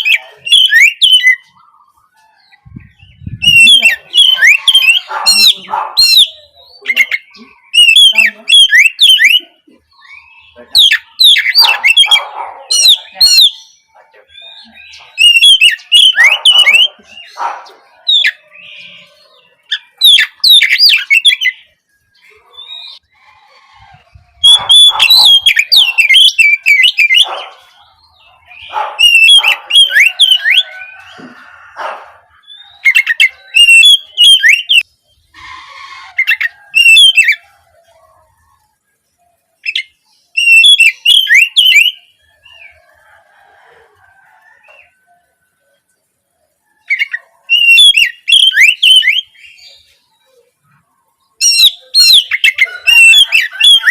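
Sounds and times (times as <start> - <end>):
bird singing whistled notes: 0.0 - 1.6, 2.4 - 12.2, 12.8 - 17.4, 18.1 - 21.7, 24.4 - 27.5, 28.5 - 31.1, 32.4 - 35.3, 36.2 - 37.5, 39.6 - 42.8, 46.8 - 49.9, 51.4 - 53.9.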